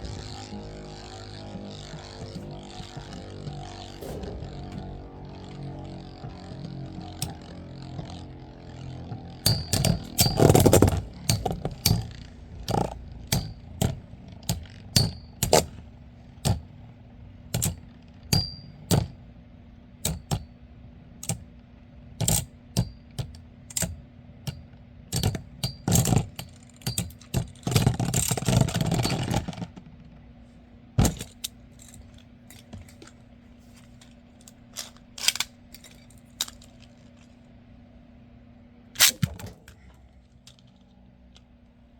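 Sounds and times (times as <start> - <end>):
metal spinning tops clashing: 9.4 - 15.8.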